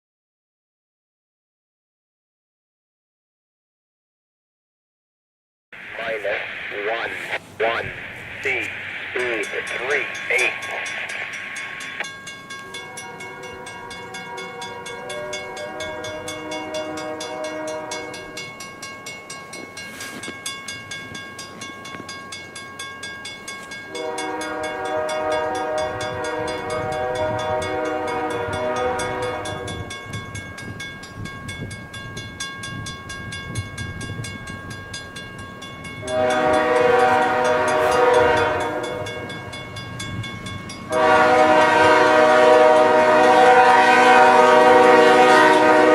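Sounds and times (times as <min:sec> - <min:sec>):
train rumble: 0:05.8 - 0:45.9
rapid bell ringing: 0:09.3 - 0:17.3, 0:29.0 - 0:36.1
locomotive air horn blasts: 0:12.8 - 0:18.4, 0:23.9 - 0:29.9, 0:36.0 - 0:39.2, 0:40.9 - 0:45.9.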